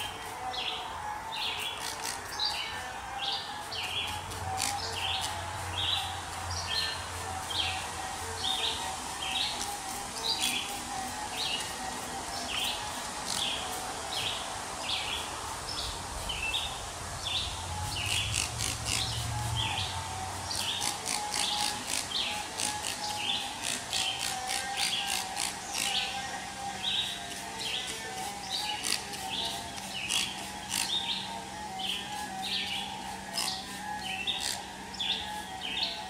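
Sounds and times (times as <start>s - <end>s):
bird chirping: 0.0s - 36.0s.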